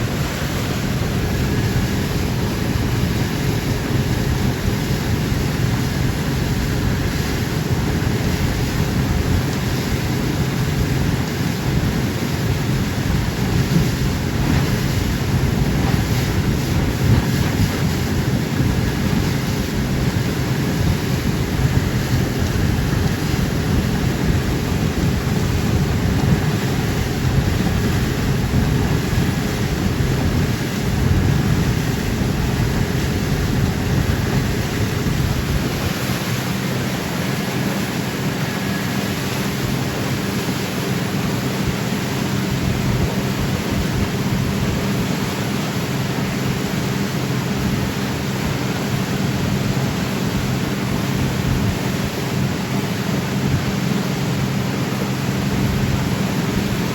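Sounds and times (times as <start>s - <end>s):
boat engine running: 0.0s - 56.9s
wind rush on microphone: 0.0s - 56.9s.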